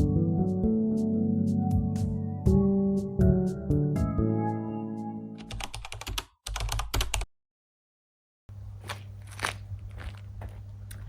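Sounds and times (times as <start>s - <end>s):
background music: 0.0s - 5.7s.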